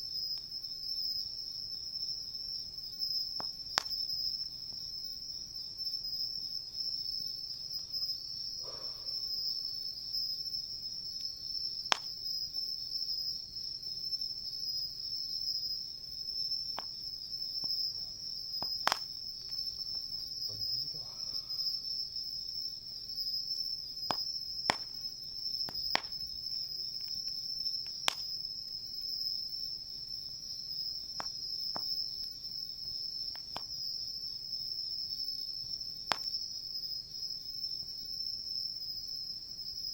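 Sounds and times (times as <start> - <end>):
crickets and insects chirring: 0.0 - 39.9
campfire pops and crackles: 2.4 - 5.0, 11.1 - 13.7, 15.4 - 29.8, 30.7 - 34.4, 35.4 - 36.6.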